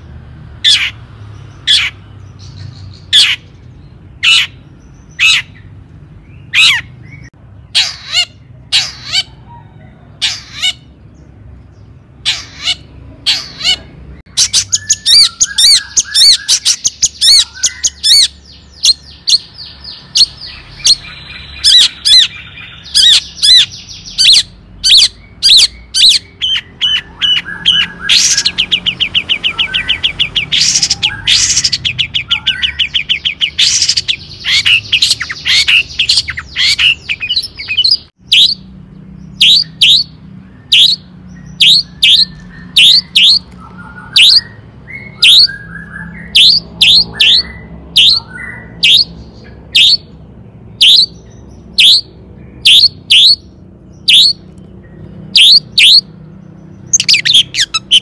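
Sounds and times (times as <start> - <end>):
shrike calling and chattering: 0.0 - 58.0.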